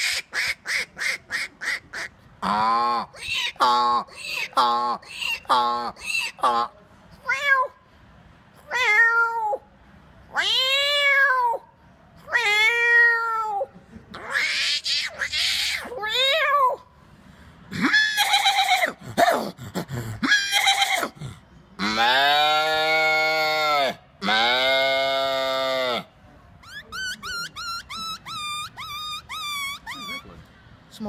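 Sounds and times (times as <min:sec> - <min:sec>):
man imitating animal calls: 0:02.4 - 0:06.8, 0:17.7 - 0:30.4.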